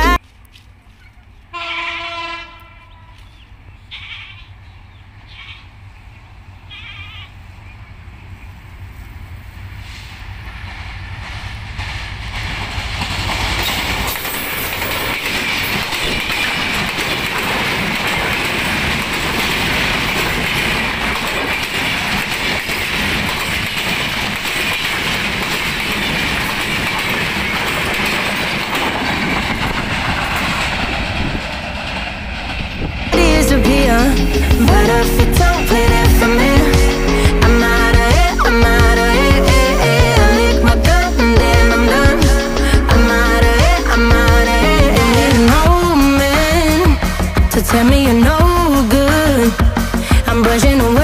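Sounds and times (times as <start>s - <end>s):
train passing: 0.0s - 51.0s
wheels clicking over rail joints: 10.4s - 38.7s.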